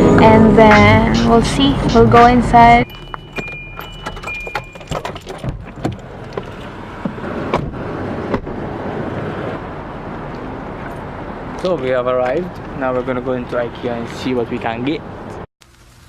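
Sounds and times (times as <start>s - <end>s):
short high beeps: 2.8s - 5.0s
keys jangling and clicks: 2.8s - 5.5s.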